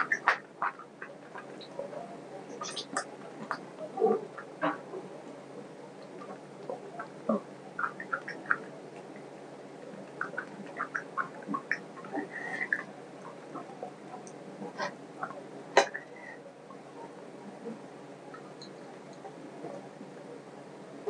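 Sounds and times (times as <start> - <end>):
mouth smacks and clicks: 7.8 - 8.7.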